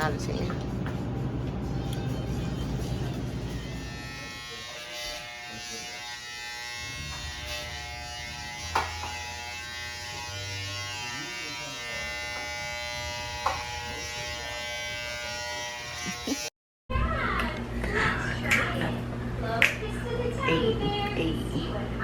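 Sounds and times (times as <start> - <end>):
small motor buzzing hum: 2.8 - 16.5.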